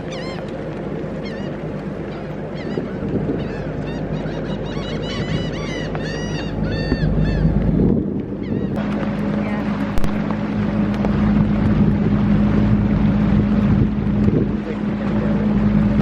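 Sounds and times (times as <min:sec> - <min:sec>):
birds squawking: 0:00.0 - 0:00.5, 0:01.2 - 0:07.8, 0:08.4 - 0:08.8
low rumble: 0:00.0 - 0:16.0.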